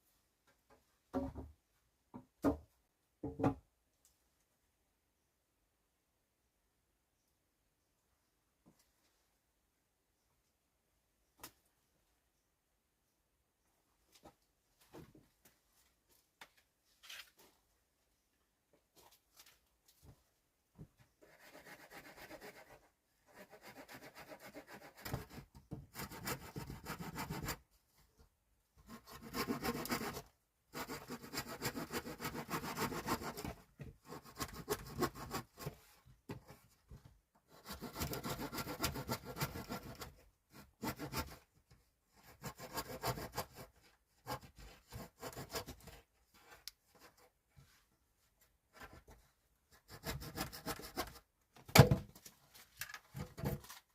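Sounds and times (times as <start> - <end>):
hand tool scraping wood: 28.8 - 36.6, 37.5 - 41.4, 42.2 - 47.3, 49.8 - 51.2.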